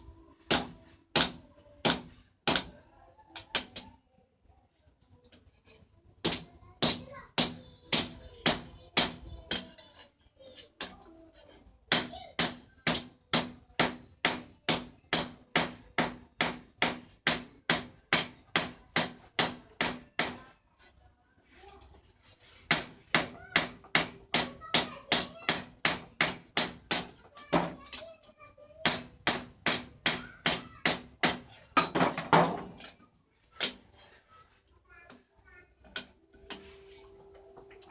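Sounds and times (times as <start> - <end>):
hammer striking steel on anvil: 0.5 - 2.9, 6.2 - 9.8, 11.9 - 20.6, 22.7 - 27.2, 28.8 - 32.0.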